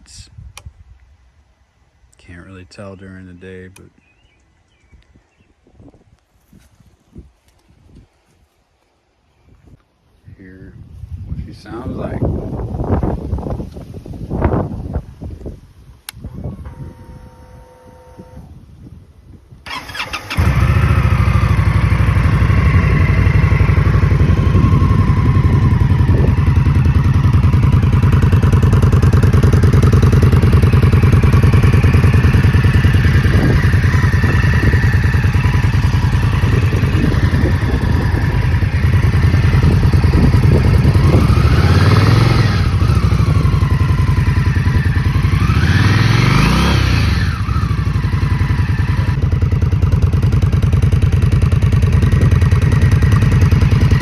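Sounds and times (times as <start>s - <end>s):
motorcycle engine idling and revving: 11.4s - 19.0s, 19.6s - 54.0s.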